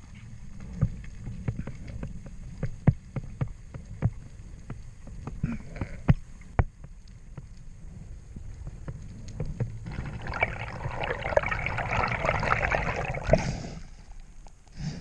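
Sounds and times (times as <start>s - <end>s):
water splashing and bubbling: 9.8s - 14.2s.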